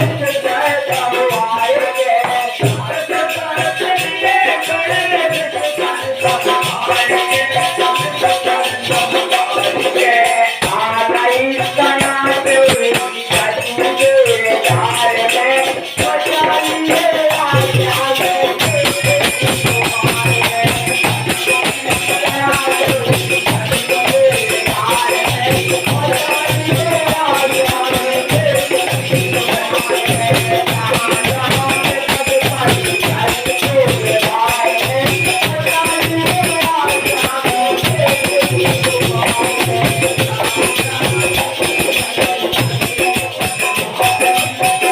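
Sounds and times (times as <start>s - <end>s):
jingling shaken percussion: 0.0s - 44.9s.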